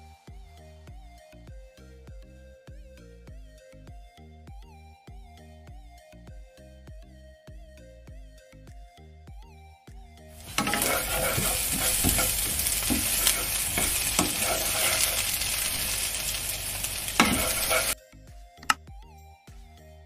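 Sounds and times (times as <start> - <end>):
soft background music: 0.0 - 20.0
food sizzling in a pan: 10.4 - 18.0
spatula stirring and scraping: 10.4 - 18.0
spatula knock: 10.5 - 15.1.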